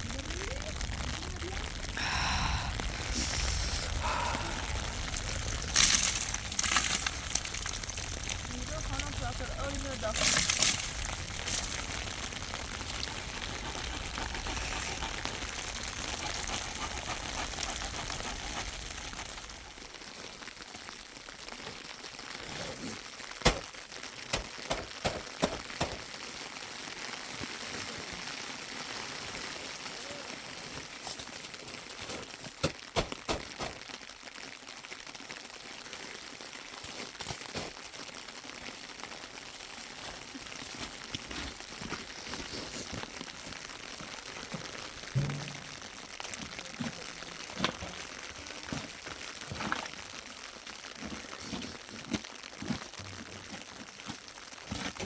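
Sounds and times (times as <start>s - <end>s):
steady rain falling: 0.0s - 55.0s
sharp knocks and clatters: 45.1s - 45.8s.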